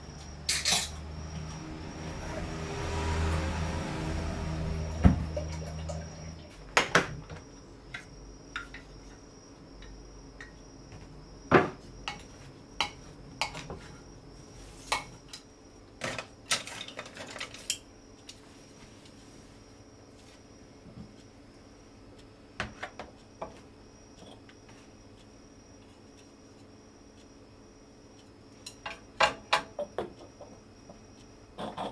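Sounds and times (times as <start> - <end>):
dishes and cutlery clinking: 0.5 - 1.0.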